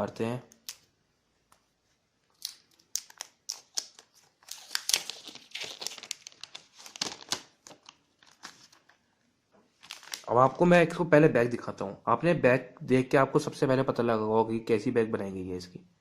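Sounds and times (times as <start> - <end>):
plastic film crinkling: 2.3 - 9.1, 9.7 - 10.6.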